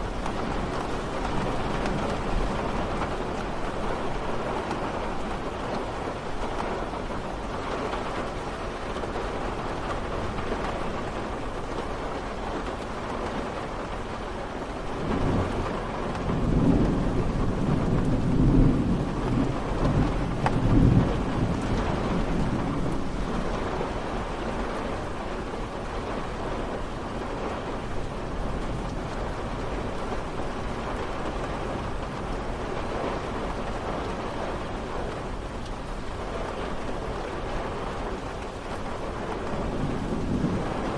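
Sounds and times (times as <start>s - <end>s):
steady rain falling: 0.0s - 40.9s
thunder rumbling: 14.8s - 40.9s.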